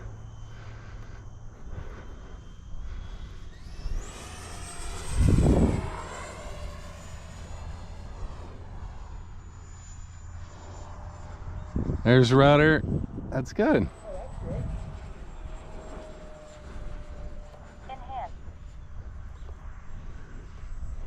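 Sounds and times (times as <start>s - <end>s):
electric jet fan whine: 0.0s - 21.0s.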